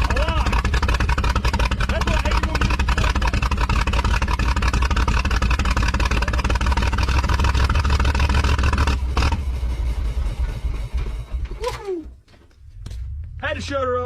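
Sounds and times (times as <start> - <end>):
car engine running rough: 0.0 - 12.0.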